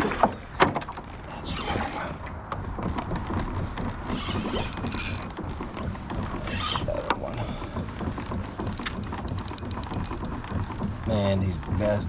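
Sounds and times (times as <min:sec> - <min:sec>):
fishing reel clicking: 0:04.1 - 0:05.3, 0:08.4 - 0:10.6.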